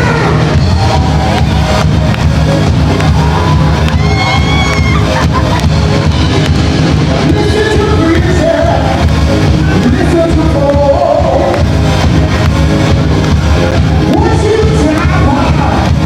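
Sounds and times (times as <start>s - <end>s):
audience shouting: 0.0s - 2.1s, 2.8s - 6.7s
live band playing amplified music: 0.0s - 16.0s
person singing: 9.7s - 11.6s.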